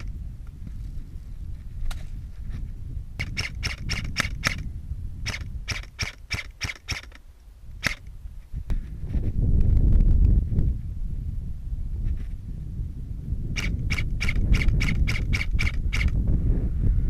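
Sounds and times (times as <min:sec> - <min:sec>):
low rumble on microphone: 0:00.0 - 0:06.0, 0:07.2 - 0:17.0
airsoft rifle shots: 0:03.2 - 0:07.2, 0:07.8 - 0:08.1, 0:13.6 - 0:16.2.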